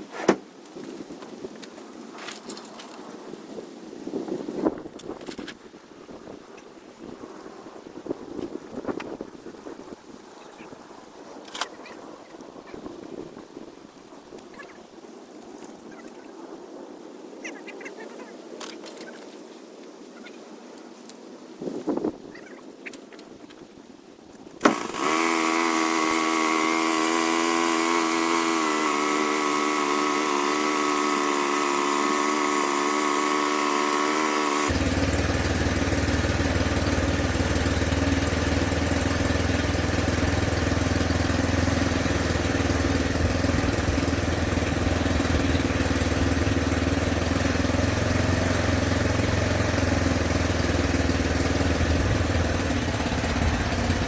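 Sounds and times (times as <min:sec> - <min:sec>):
engine-like running sound: 0:24.6 - 0:54.0.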